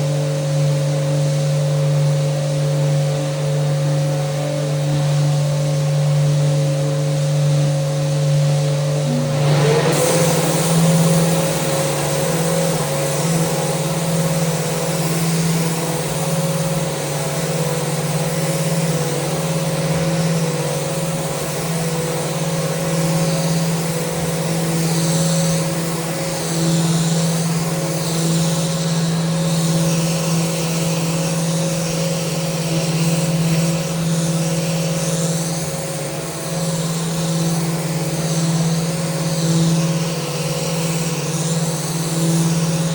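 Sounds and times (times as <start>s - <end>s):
electric sander motor hum: 0.0s - 42.9s
sanding hiss on wood: 9.1s - 42.9s.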